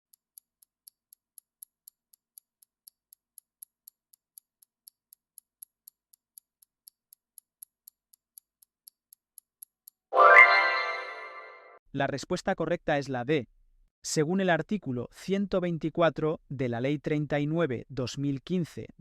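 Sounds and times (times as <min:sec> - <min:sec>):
clock ticking: 0:00.1 - 0:10.1.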